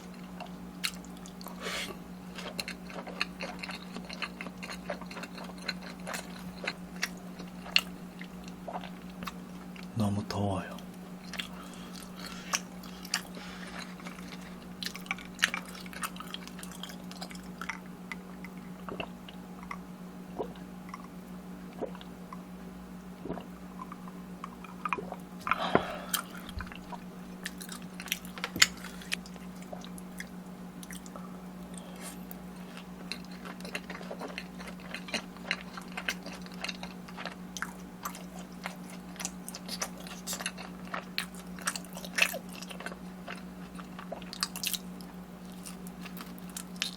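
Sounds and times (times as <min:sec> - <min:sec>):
chewing and biting food: 0:00.0 - 0:10.0, 0:10.8 - 0:46.9
steady low hum: 0:00.0 - 0:46.9.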